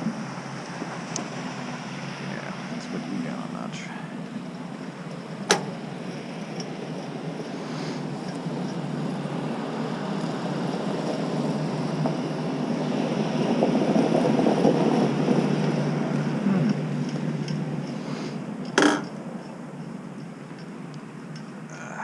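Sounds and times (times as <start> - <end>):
road vehicle passing: 0.0 - 22.0.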